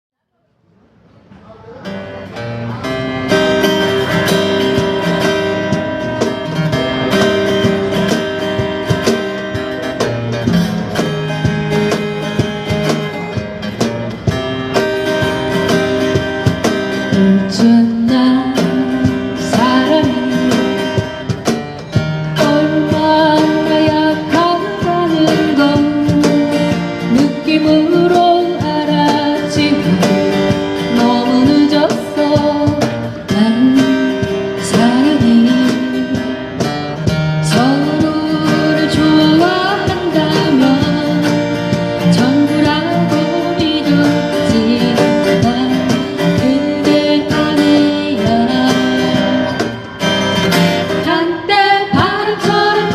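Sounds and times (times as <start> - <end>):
strummed acoustic guitar: 1.8 - 52.9
person singing pop ballad: 16.9 - 21.3, 22.4 - 36.6, 37.2 - 49.9, 50.6 - 52.9.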